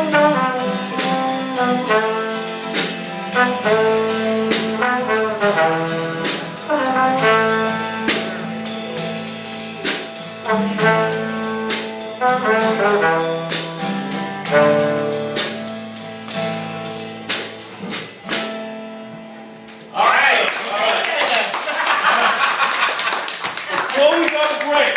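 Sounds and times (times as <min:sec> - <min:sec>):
live band playing: 0:00.0 - 0:19.9.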